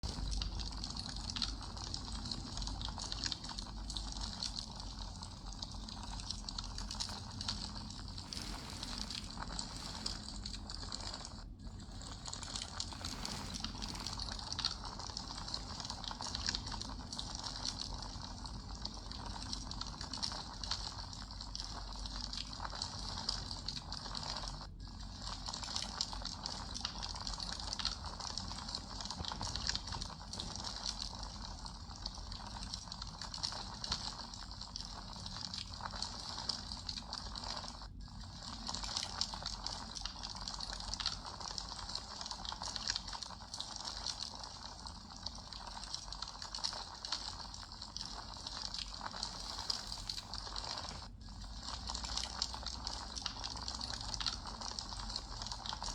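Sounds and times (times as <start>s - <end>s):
wood crackling and popping: 0.0s - 24.3s, 25.4s - 37.5s
flames rushing: 7.0s - 11.1s, 11.8s - 14.8s.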